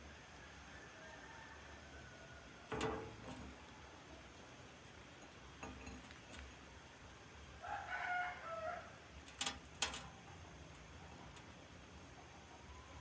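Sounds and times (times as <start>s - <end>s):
rooster crowing: 0.2s - 2.7s, 7.6s - 9.0s.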